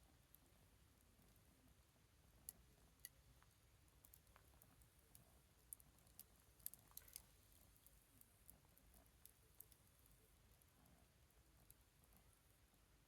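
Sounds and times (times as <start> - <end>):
wood fire crackling: 4.0 - 9.9.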